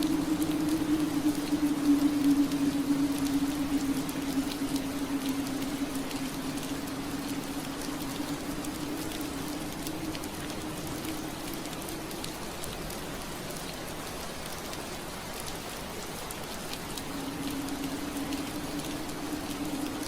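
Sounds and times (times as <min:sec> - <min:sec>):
low hum: 0:00.0 - 0:13.5
rain on window glass: 0:00.0 - 0:20.0.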